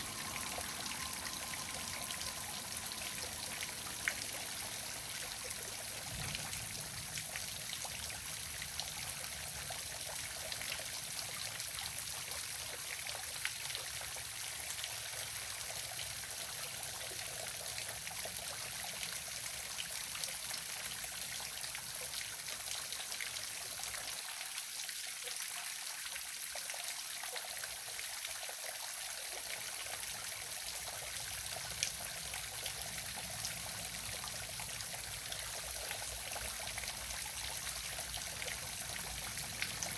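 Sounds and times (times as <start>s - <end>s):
faint low rumble: 0.0s - 9.9s.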